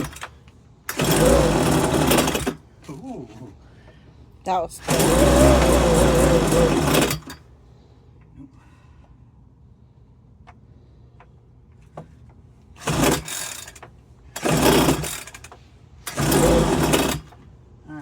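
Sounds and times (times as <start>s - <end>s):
pull-start cord rasping: 0.0s - 2.6s, 4.8s - 7.4s, 12.8s - 17.4s.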